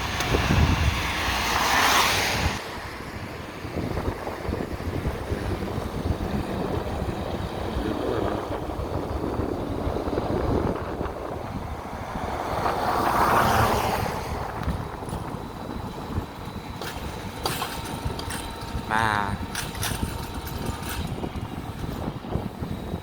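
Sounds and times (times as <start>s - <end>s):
vehicle passing: 0.0s - 17.2s
road traffic: 0.0s - 23.0s
wind buffeting microphone: 0.0s - 23.0s.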